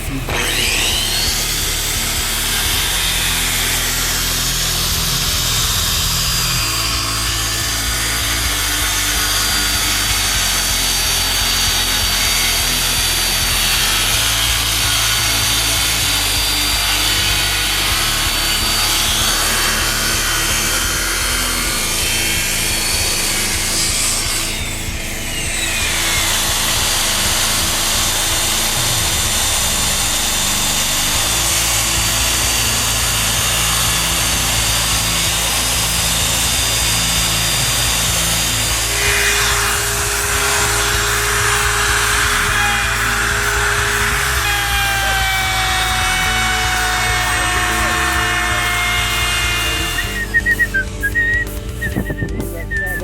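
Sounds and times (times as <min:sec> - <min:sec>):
power tool cutting wood: 0:00.0 - 0:53.0.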